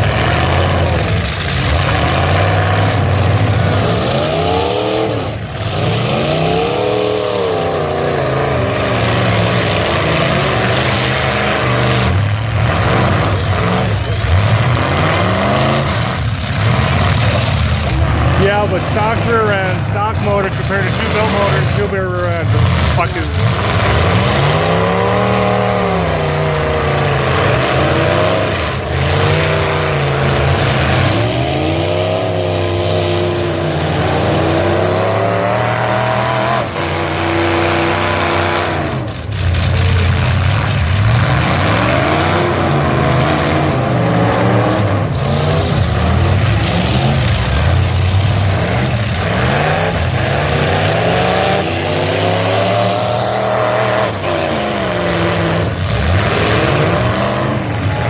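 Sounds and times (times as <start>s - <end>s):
pickup truck engines revving: 0.0s - 58.0s.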